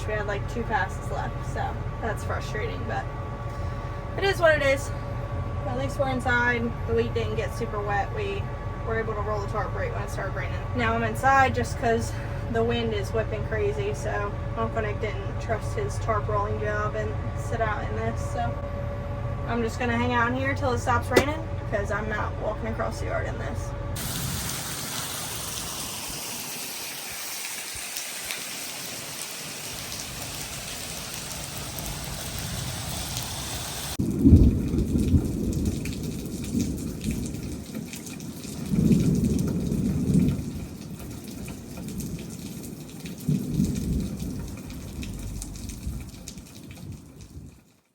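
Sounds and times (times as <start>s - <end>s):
heavy rain pouring: 24.0s - 47.6s
light rain: 24.0s - 47.9s
low rolls of thunder: 34.0s - 47.6s.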